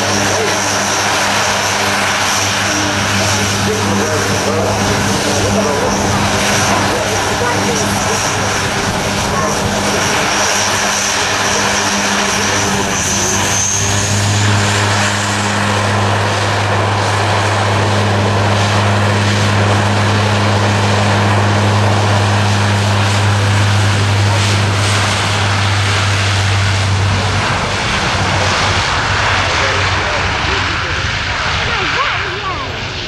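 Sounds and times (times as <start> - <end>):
high turbine whine: 0.0 - 33.0
low propeller drone: 0.0 - 33.0.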